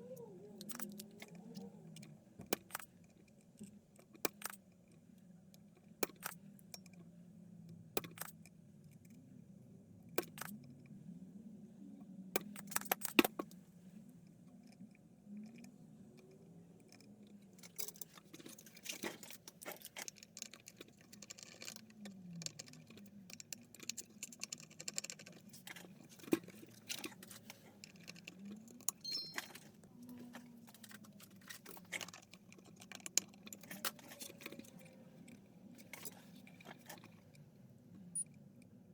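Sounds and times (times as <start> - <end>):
faint low hum: 0.0 - 38.9
metal tools clicking and clinking: 17.6 - 29.7.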